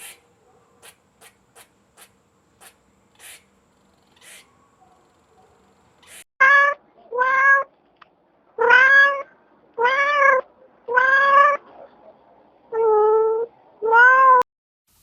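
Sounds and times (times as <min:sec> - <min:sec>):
cat meowing: 0:06.4 - 0:07.7, 0:08.6 - 0:11.6, 0:12.7 - 0:14.4.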